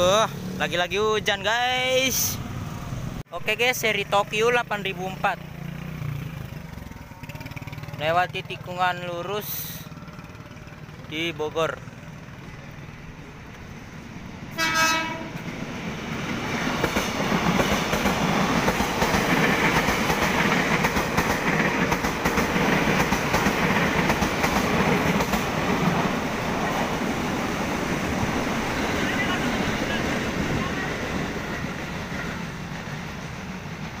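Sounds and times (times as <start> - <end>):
train wheels rushing on rail: 5.3 - 34.0
train horn blast: 14.5 - 15.4
clacking over rail joints: 16.6 - 26.2.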